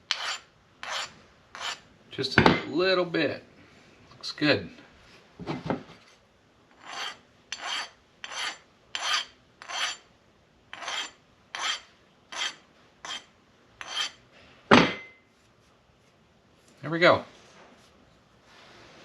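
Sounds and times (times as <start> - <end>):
hand file rasping on metal: 0.1 - 1.8, 6.8 - 10.0, 10.7 - 14.2.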